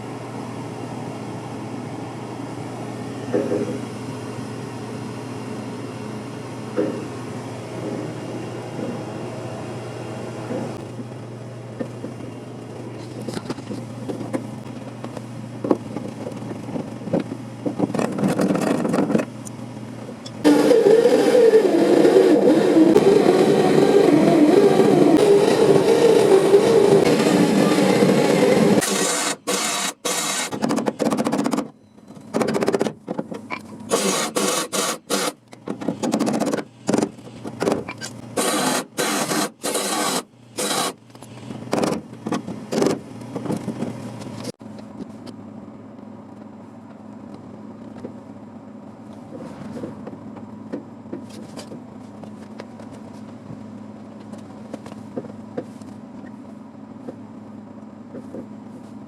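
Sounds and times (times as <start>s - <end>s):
steady low hum: 0.0s - 32.3s.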